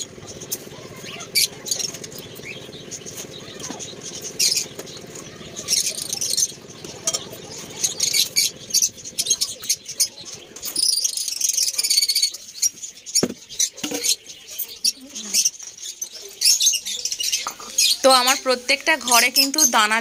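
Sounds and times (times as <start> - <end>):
caged birds chirping: 0.0 - 20.0
knock: 13.2 - 13.4.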